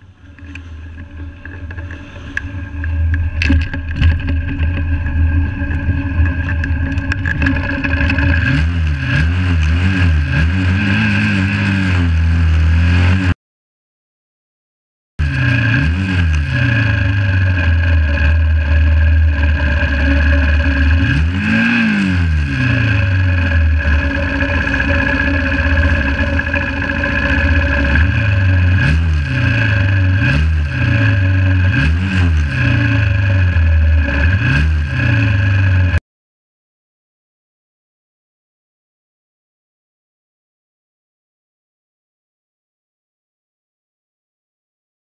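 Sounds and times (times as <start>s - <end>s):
motorcycle engine idling: 16.4s - 31.7s.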